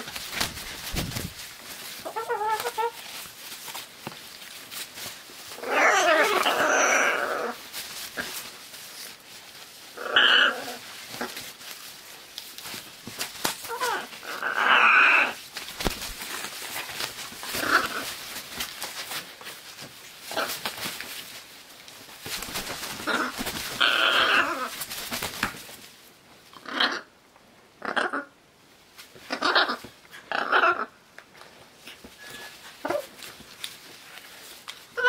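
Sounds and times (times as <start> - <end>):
macaws squawking: 2.0 - 3.0.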